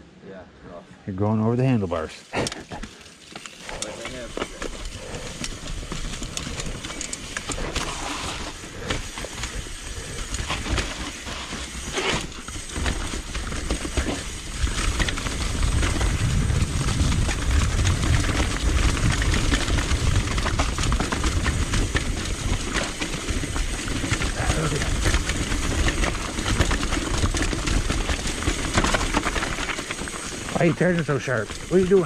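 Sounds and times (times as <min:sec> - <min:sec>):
bike tyres grinding over rock: 0:01.6 - 0:32.0
bike chain and frame rattling: 0:01.8 - 0:32.0
wind buffeting microphone: 0:14.2 - 0:29.7.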